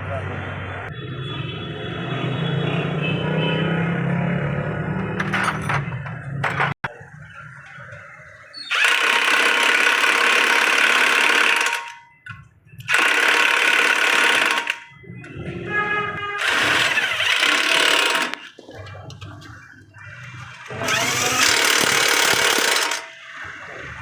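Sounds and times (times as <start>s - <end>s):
power tool running: 8.7s - 11.9s, 12.9s - 14.8s, 16.4s - 18.5s, 20.6s - 23.2s.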